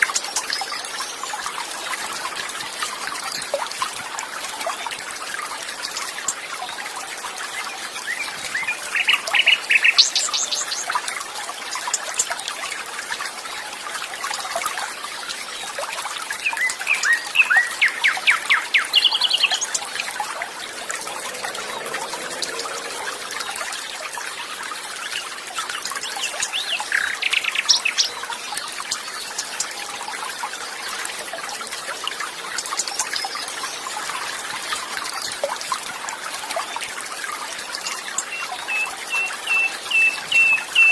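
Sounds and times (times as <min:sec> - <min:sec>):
trickling stream: 0:00.0 - 0:40.9
birds singing: 0:16.4 - 0:23.9, 0:38.2 - 0:40.9.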